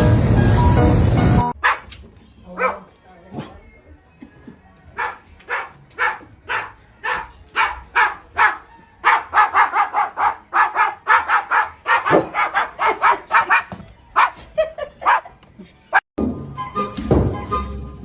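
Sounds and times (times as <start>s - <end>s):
dog barking: 1.6s - 1.9s, 2.5s - 2.9s, 5.0s - 14.4s, 15.0s - 15.3s.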